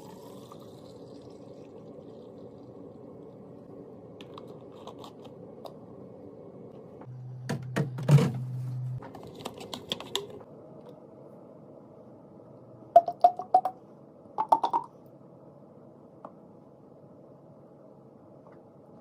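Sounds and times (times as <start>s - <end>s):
containers clicking and tapping: 14.4s - 14.9s.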